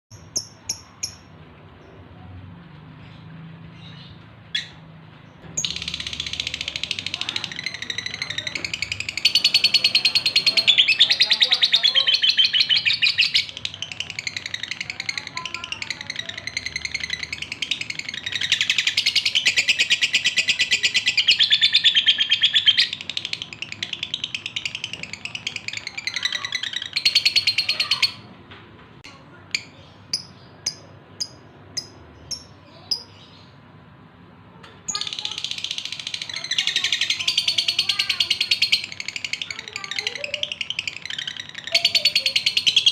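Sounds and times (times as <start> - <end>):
bird high-pitched chattering song: 0.1 - 1.4, 3.8 - 28.3, 29.1 - 33.8, 34.9 - 42.9.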